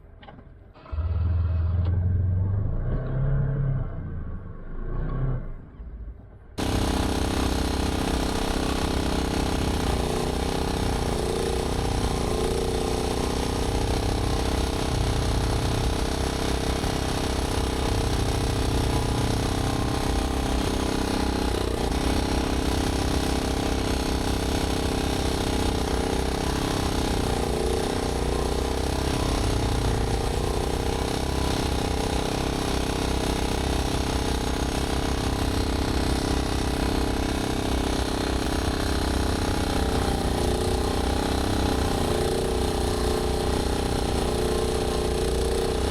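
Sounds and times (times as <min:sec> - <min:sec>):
snowblower engine running: 0:06.6 - 0:45.9.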